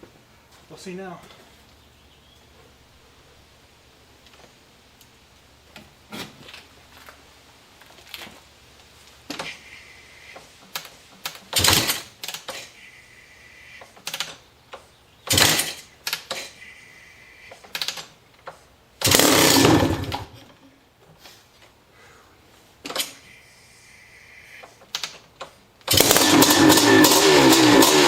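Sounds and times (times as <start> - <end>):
light engine clatter: 10.7 - 12.7, 15.3 - 16.6, 19.0 - 20.5, 25.9 - 28.0
motorcycle engine kick start bursts: 10.7 - 12.7, 15.2 - 16.6, 19.0 - 20.4, 25.9 - 28.0.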